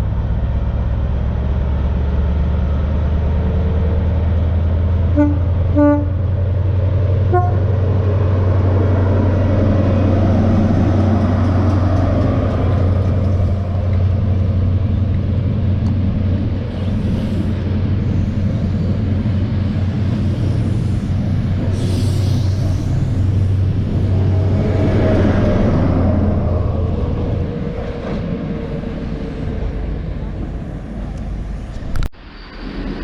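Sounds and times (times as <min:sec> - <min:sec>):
diesel train engines rumbling: 0:00.0 - 0:33.0
air hiss: 0:16.7 - 0:23.7.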